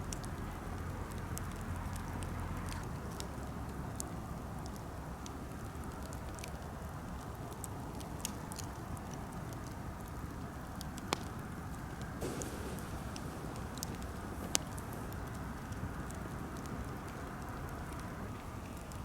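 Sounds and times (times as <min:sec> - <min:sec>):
campfire crackling: 0:00.0 - 0:19.0
fire popping: 0:00.0 - 0:19.0
fire low rush: 0:12.2 - 0:19.0.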